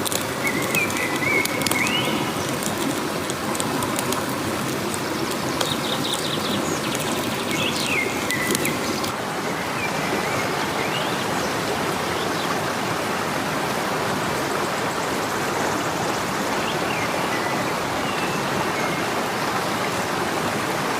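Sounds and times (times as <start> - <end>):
stream flowing: 0.0 - 20.9.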